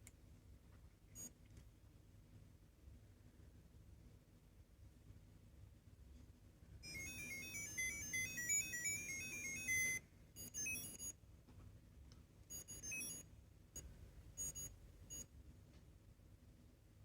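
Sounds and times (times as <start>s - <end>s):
electronic toy beeping melody: 6.8s - 11.1s, 12.5s - 13.2s.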